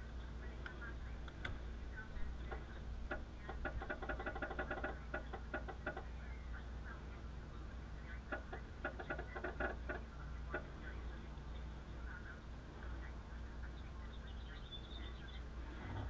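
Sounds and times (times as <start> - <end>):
steady low hum: 0.0 - 16.0
light clicking and ticking: 0.6 - 1.6.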